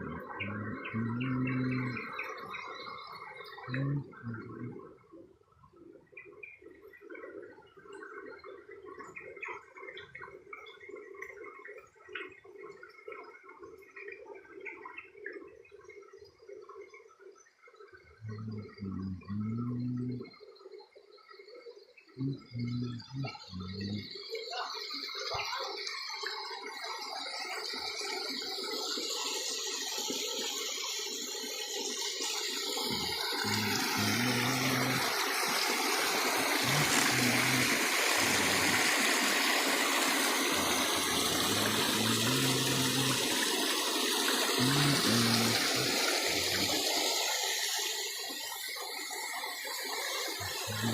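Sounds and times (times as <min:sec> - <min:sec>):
water gurgling and trickling: 0:00.0 - 0:50.9.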